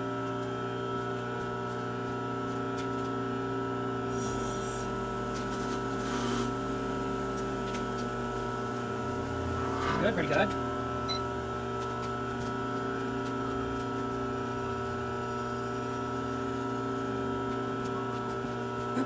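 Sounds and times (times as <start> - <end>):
milling machine motor humming: 5.0 - 17.0
cutter scraping metal: 8.8 - 11.2.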